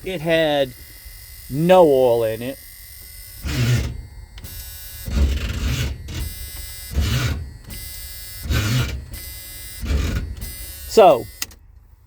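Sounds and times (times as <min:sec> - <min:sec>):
starter motor cranking engine: 0:03.4 - 0:11.6.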